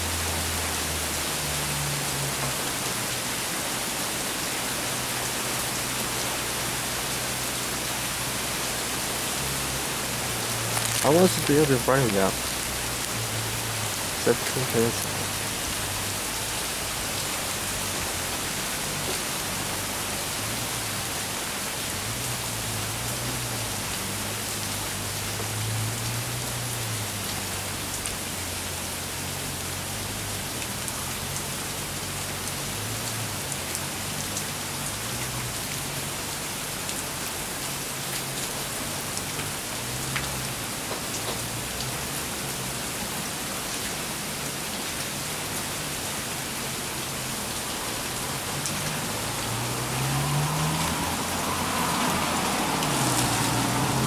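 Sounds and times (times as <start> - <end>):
steady rain: 0.0 - 54.0
raindrop ticks: 10.3 - 15.9, 38.1 - 42.0.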